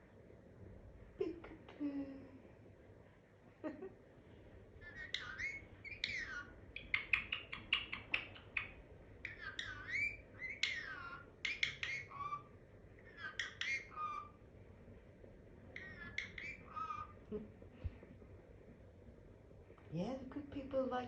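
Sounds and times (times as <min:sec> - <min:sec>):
parrot whistling and chattering: 0:04.8 - 0:14.4, 0:15.7 - 0:17.2.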